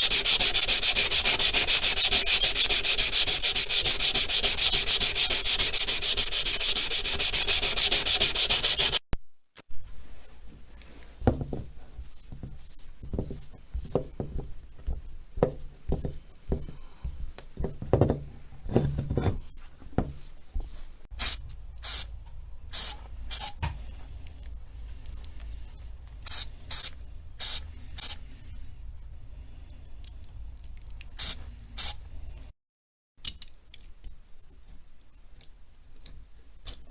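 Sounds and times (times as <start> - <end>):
sanding strokes: 0.0 - 9.0
short hissing bursts: 0.0 - 9.0, 21.2 - 22.1, 22.7 - 23.6, 26.3 - 28.2, 31.2 - 32.0.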